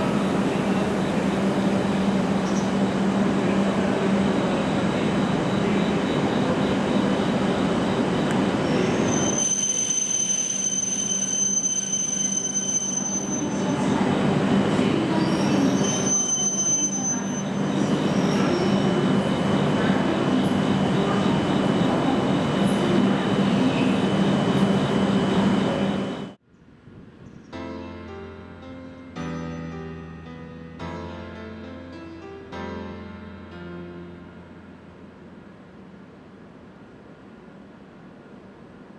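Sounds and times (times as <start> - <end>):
train rumble and hum: 0.0 - 10.7, 13.0 - 16.2, 17.1 - 27.3
high piercing wheel squeal: 5.0 - 13.9, 15.1 - 23.4.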